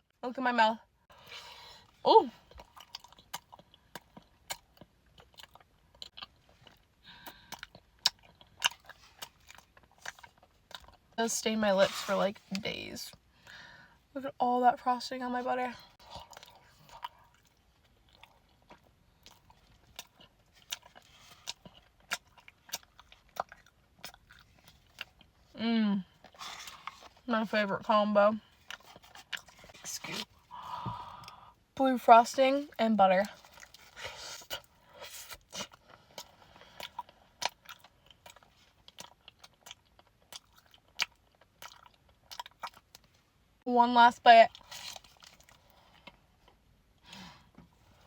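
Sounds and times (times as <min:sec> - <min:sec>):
mouth chewing with wet smacks: 0:02.4 - 0:11.2, 0:16.0 - 0:27.2, 0:28.4 - 0:30.4, 0:33.2 - 0:43.1.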